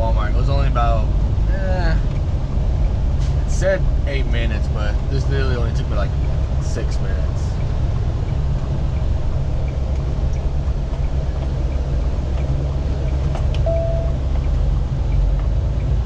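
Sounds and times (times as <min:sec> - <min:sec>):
diesel truck engine rumble: 0:00.0 - 0:16.0
short steady tone: 0:13.6 - 0:14.2.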